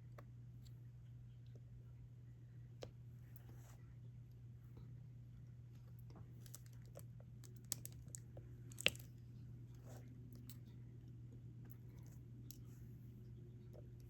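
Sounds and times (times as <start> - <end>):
small clicks and taps of drill pen: 6.4 - 8.2.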